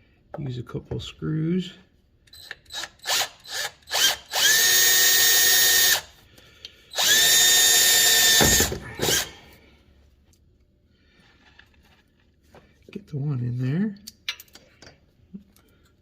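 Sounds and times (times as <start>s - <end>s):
power drill driving screws: 2.3s - 6.1s, 6.9s - 9.3s.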